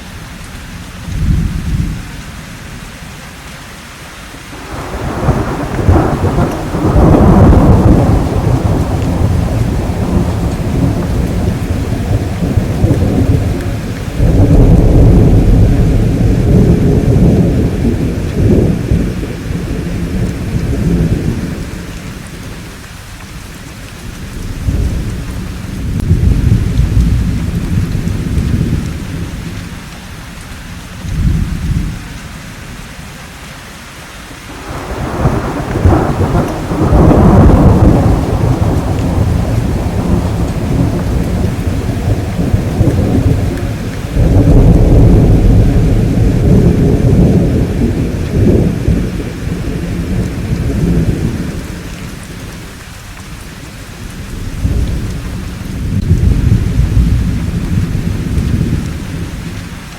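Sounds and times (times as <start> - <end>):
steady rain: 0.0 - 59.9
thunder clap: 4.6 - 22.6, 24.2 - 29.6, 34.5 - 52.5, 54.1 - 59.7
rolling thunder: 4.6 - 22.7, 24.0 - 29.8, 31.1 - 32.0, 34.5 - 52.7, 54.0 - 59.7.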